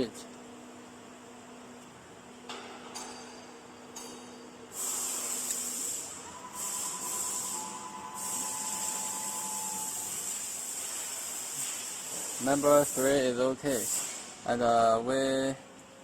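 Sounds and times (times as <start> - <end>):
compressed air hissing: 4.7 - 14.4.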